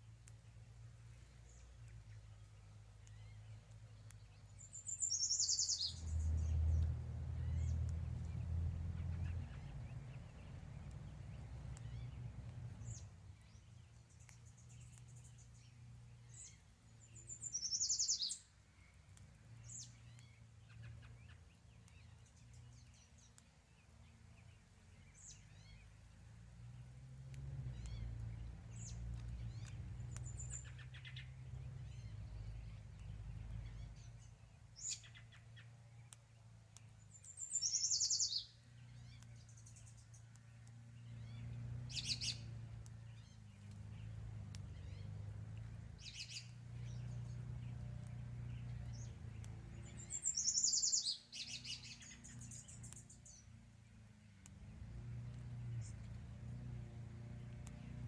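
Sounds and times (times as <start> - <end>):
songbird trilling: 4.4 - 8.3, 16.3 - 18.5, 37.1 - 40.2, 41.1 - 42.5, 46.0 - 47.8, 48.5 - 53.5
short high bird chirps: 4.6 - 6.3, 50.0 - 53.1.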